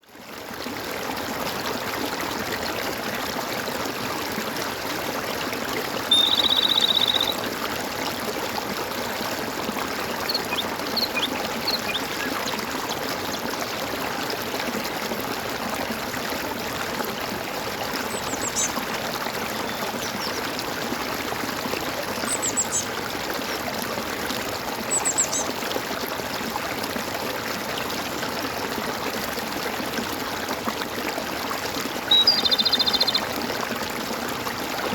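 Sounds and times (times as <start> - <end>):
water gurgling: 0.2 - 34.9
birds chirping: 6.1 - 7.4, 10.3 - 13.5, 18.1 - 18.8, 22.3 - 22.9, 32.1 - 33.2.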